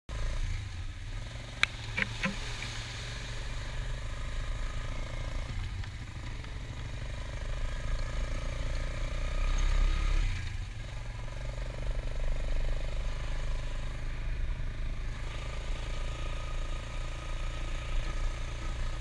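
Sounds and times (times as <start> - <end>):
atv engine running: 0.1 - 19.0
sharp click: 1.6 - 2.7.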